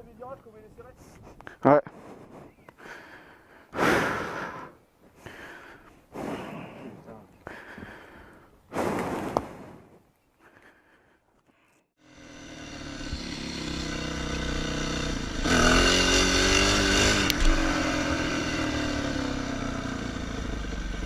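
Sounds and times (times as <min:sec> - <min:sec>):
motorcycle engine revving: 0:12.0 - 0:21.0.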